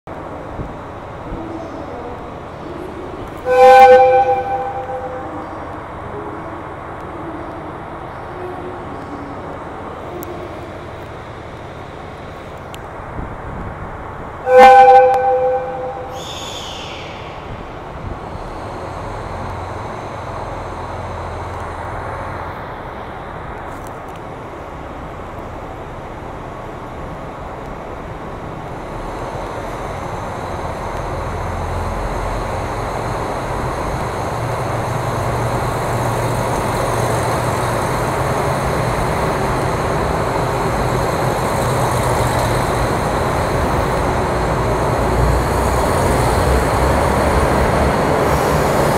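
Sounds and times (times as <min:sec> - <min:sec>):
diesel train engines and wheels: 0:00.0 - 0:48.9
train horn blast: 0:03.3 - 0:05.8, 0:14.4 - 0:16.3.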